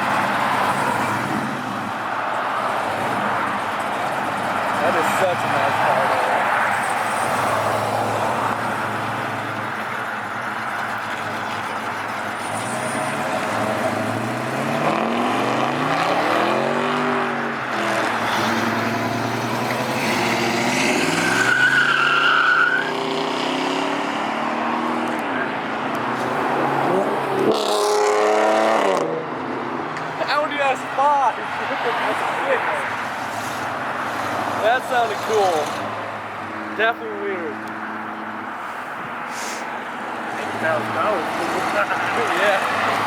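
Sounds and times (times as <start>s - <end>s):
cars driving past: 0.0s - 43.0s
car engine revving: 2.4s - 29.3s, 39.8s - 43.0s.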